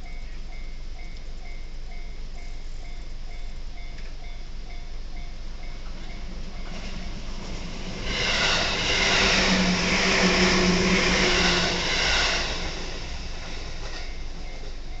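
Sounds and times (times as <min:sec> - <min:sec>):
steady low hum: 0:00.0 - 0:15.0
train wheels rumbling on rails: 0:00.0 - 0:15.0.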